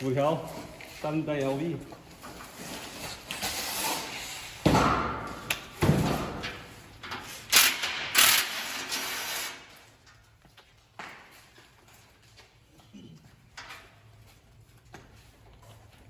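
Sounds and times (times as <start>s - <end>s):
metal parts and tools clattering: 5.3s - 9.4s
ratchet clicking: 7.5s - 9.5s.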